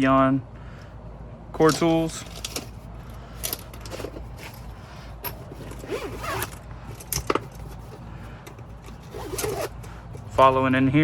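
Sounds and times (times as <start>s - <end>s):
zipper being pulled: 5.2s - 8.0s, 8.9s - 9.9s.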